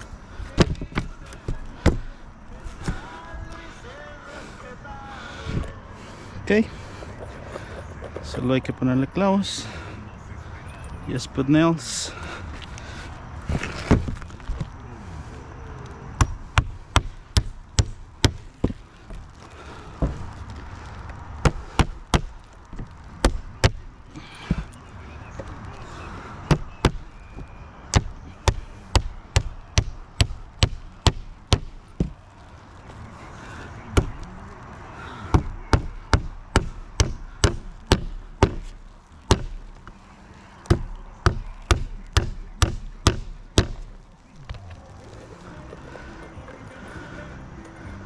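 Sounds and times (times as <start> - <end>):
nails driven into shingles: 0.0 - 3.7, 16.2 - 24.8, 25.4 - 32.3, 33.6 - 34.4, 35.1 - 40.0, 40.6 - 44.6.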